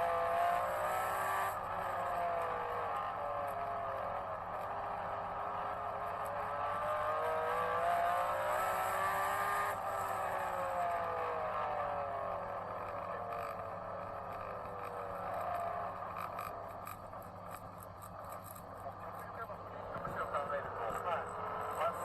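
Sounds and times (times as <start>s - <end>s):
race car engine passing by: 18.8s - 22.0s.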